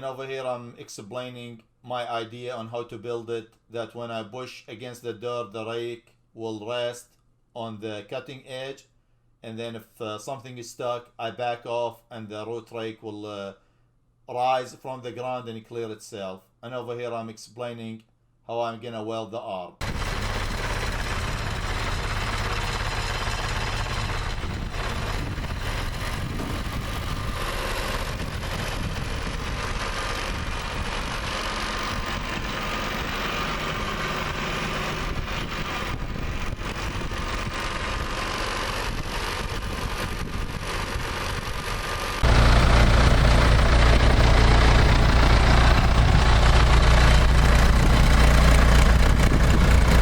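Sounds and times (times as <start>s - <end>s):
engine idling: 19.8s - 50.0s.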